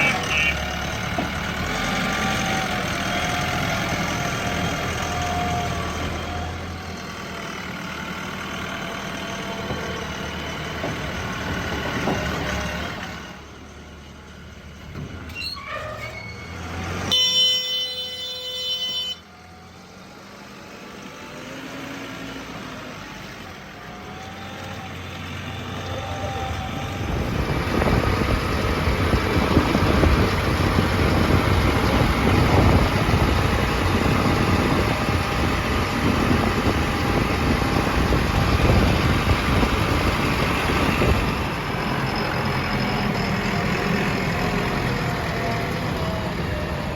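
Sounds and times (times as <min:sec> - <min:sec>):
loud horn-like tone: 0:00.0 - 0:00.7, 0:17.1 - 0:19.2
diesel engines running: 0:00.0 - 0:46.9.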